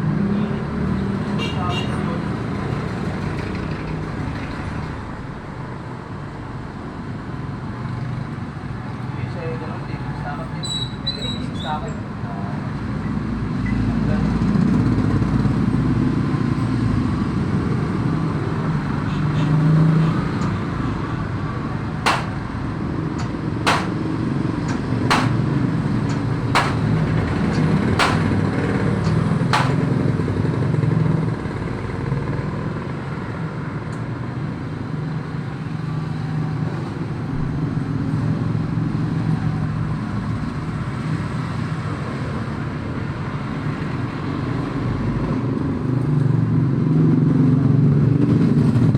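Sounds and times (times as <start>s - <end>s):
sharp knocks: 22.1s - 22.6s, 23.2s - 24.1s, 24.7s - 25.6s, 26.5s - 27.2s, 28.0s - 28.5s, 29.5s - 30.0s.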